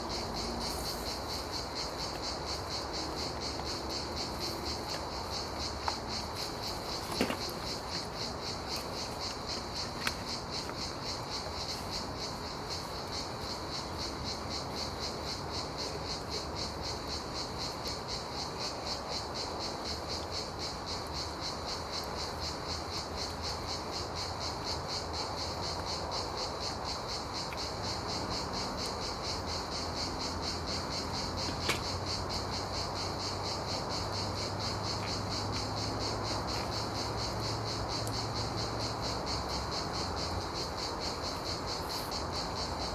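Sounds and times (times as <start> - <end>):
crickets chirping: 0.0 - 42.9.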